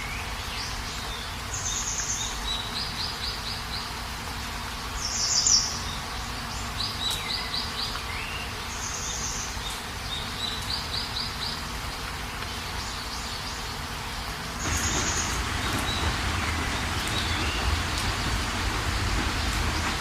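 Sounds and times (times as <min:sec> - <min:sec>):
steady rain hiss: 0:00.0 - 0:20.0
small birds chirping: 0:05.0 - 0:20.0.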